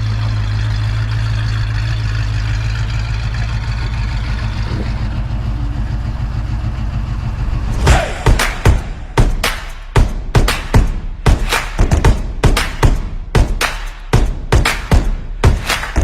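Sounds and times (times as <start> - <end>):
car engine idling: 0.0 - 16.0
sudden loud hit: 7.6 - 9.4.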